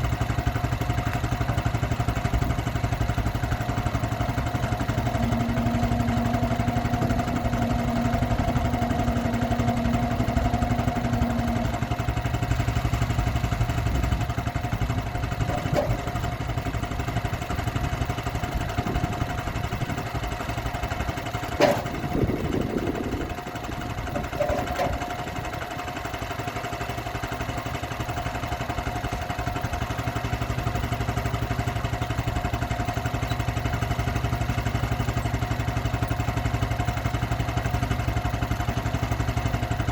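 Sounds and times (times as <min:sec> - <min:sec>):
sawmill engine running: 0:00.0 - 0:39.9
steady tone: 0:04.2 - 0:13.8.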